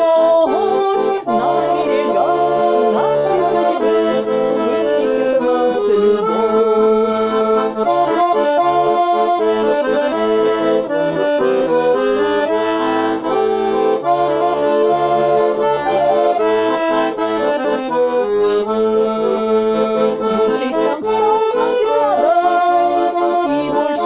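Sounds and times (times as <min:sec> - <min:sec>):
button accordion melody: 0:00.0 - 0:24.0.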